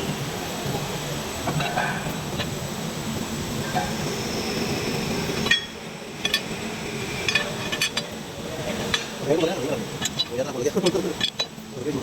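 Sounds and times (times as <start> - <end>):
mechanical running noise: 0.0 - 12.0.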